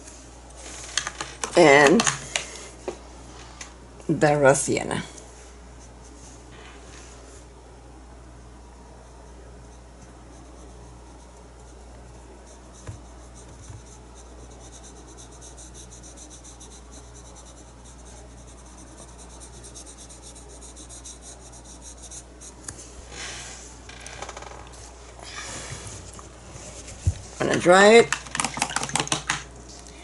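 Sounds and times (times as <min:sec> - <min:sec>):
steady low hum: 0:00.0 - 0:28.2
paintbrush scratching on surface: 0:09.0 - 0:23.8.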